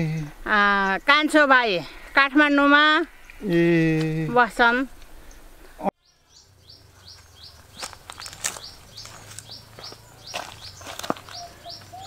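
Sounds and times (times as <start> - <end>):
small bird chirping: 5.2 - 12.0.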